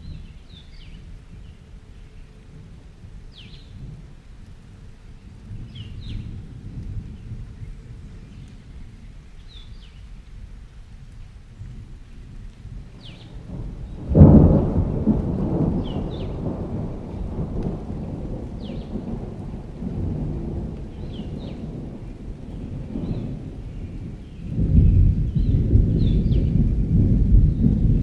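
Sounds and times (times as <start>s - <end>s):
rain: 0.0s - 28.0s
thunder rumbling: 11.7s - 28.0s
loud thunderclap: 13.0s - 28.0s.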